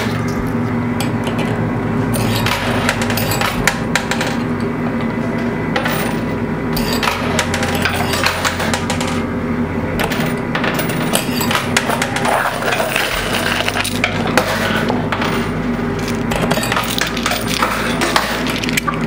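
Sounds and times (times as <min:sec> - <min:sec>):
low hum: 0:00.0 - 0:19.0
coins clinking: 0:02.2 - 0:04.7, 0:05.8 - 0:09.2, 0:10.0 - 0:19.0.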